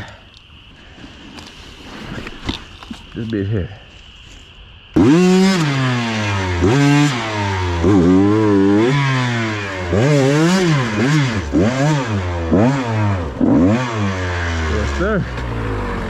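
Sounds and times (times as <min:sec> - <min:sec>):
dirt bike engine revving: 0:05.0 - 0:16.0.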